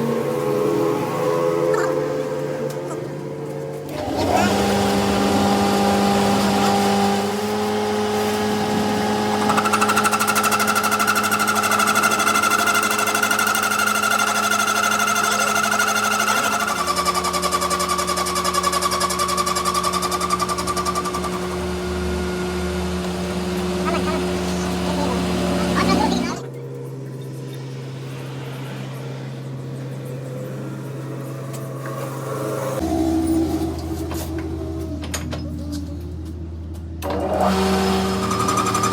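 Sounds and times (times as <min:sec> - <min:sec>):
workshop machine humming: 0:00.0 - 0:38.9
high whine: 0:19.5 - 0:36.7.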